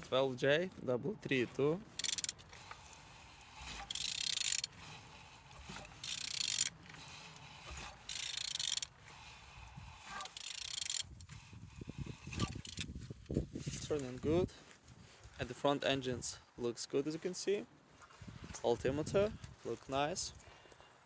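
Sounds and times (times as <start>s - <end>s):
engine turned over by hand scraping: 1.2s - 13.7s.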